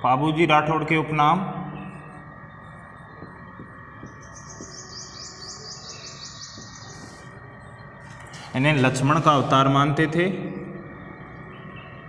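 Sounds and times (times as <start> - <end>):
small bird chirping: 1.7 - 8.6
marker tapping on whiteboard: 3.2 - 4.8.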